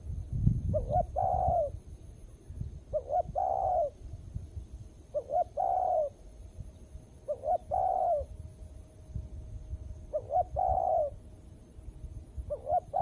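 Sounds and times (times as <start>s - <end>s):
dove cooing: 0.7s - 1.8s, 2.9s - 4.0s, 5.1s - 6.2s, 7.2s - 8.3s, 10.1s - 11.2s, 12.4s - 13.0s.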